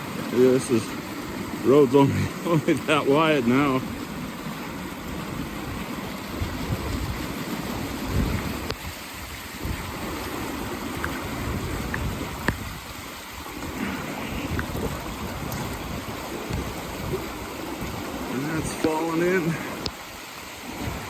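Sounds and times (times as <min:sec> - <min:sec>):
creek water rushing: 0:00.0 - 0:21.0.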